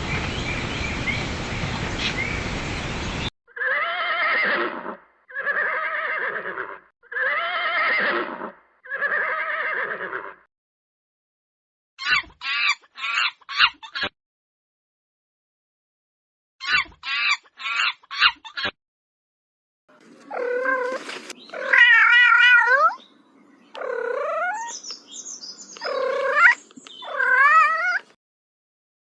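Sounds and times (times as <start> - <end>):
cat meowing: 20.2 - 23.0, 23.8 - 24.7, 25.8 - 28.1.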